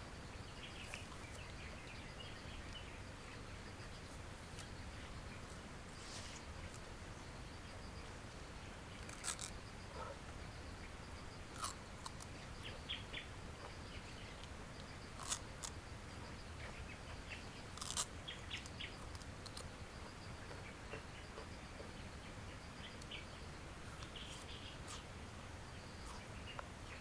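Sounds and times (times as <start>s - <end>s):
chewing crackles: 11.5s - 12.3s, 15.2s - 15.8s, 17.8s - 19.7s
grass stalk crunching: 17.8s - 18.1s.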